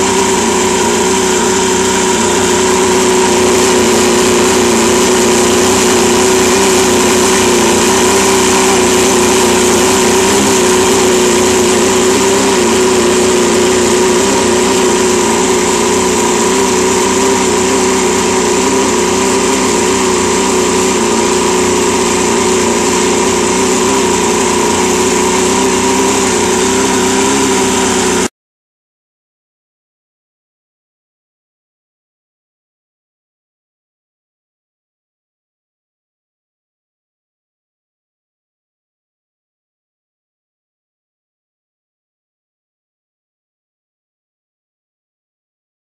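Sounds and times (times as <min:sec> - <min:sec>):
outboard motor running: 0:00.0 - 0:28.3.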